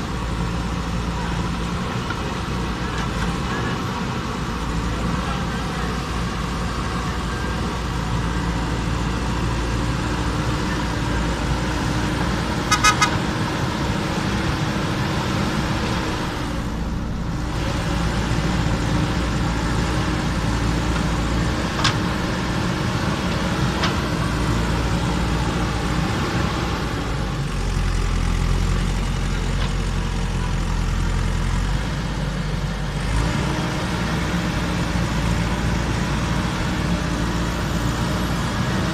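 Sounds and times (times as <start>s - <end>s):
diesel engine under load: 0.0s - 38.9s
horn toots: 12.6s - 13.3s.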